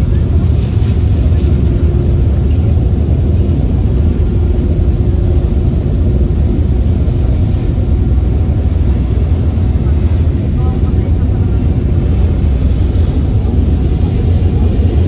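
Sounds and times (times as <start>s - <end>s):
ferry engines rumbling: 0.0s - 15.0s.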